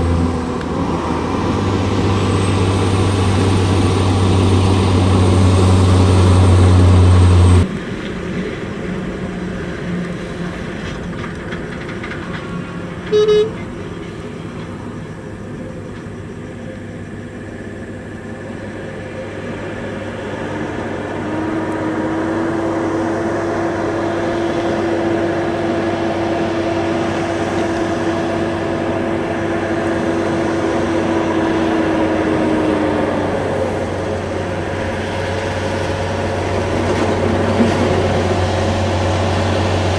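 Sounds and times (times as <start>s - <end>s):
heavy trucks running: 0.0s - 39.9s
truck horn toot: 13.1s - 13.7s.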